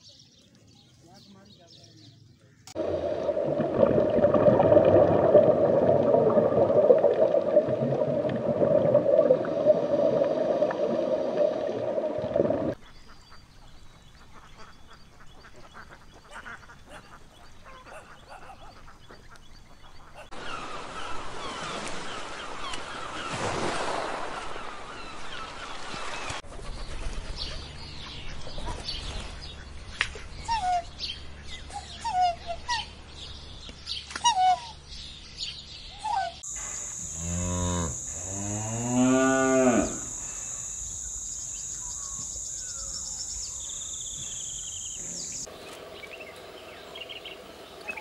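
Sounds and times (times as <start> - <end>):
underwater gurgling rush: 2.8 - 12.8
bird calls: 12.7 - 23.4, 24.5 - 37.1, 39.9 - 48.0.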